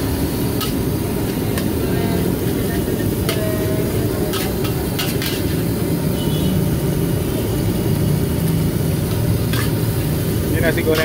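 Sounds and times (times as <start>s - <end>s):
gas burner roaring: 0.0s - 11.0s
spatula clinking against wok: 3.1s - 5.5s.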